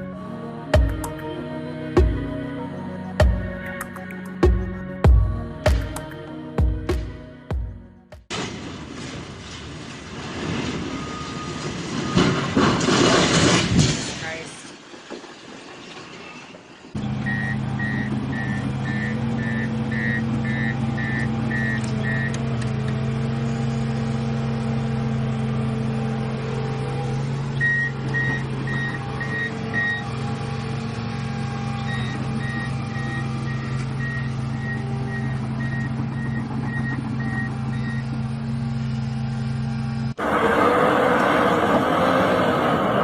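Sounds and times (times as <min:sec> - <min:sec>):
reversing alarm beeps: 0:10.9 - 0:12.4, 0:17.2 - 0:22.4, 0:27.6 - 0:30.1, 0:31.8 - 0:38.2
heavy machine engine running: 0:17.0 - 0:43.0.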